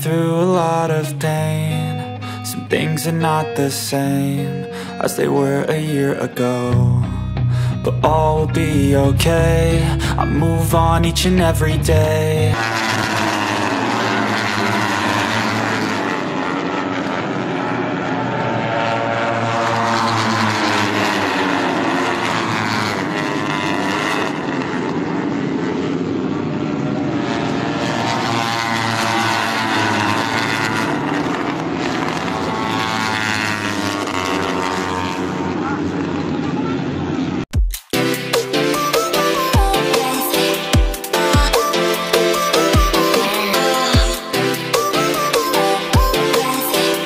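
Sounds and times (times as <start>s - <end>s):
engines passing by: 6.0s - 37.5s.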